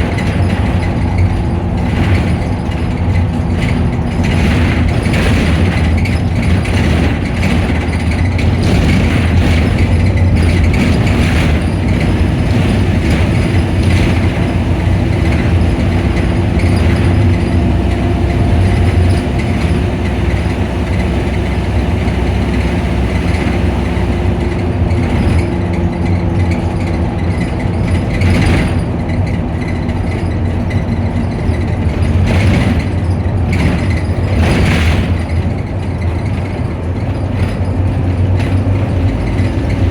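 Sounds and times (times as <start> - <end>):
bus engine running: 0.0 - 39.9
cooling fan whine: 8.7 - 28.8.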